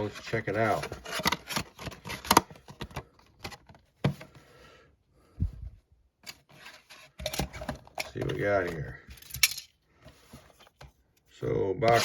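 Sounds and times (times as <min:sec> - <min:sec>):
cardboard and wrapping rustling: 0:00.0 - 0:04.4.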